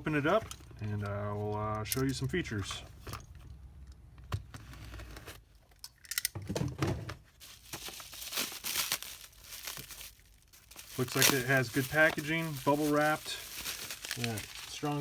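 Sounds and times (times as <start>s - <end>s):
plastic wrapping crinkling: 7.4s - 15.0s.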